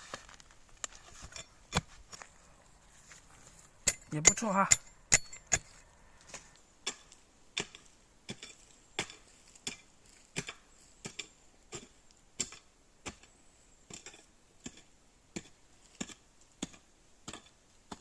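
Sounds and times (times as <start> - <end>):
hoe chopping into soil: 3.8 - 13.3, 13.9 - 18.0.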